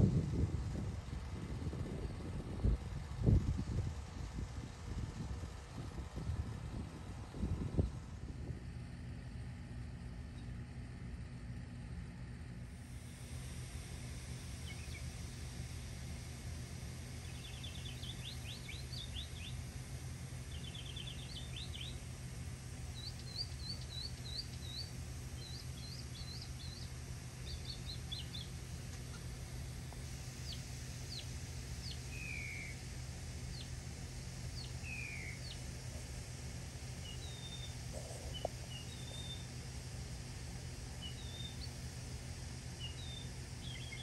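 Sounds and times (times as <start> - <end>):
steady low hum: 0.0 - 44.0
small songbirds chirping: 14.2 - 44.0.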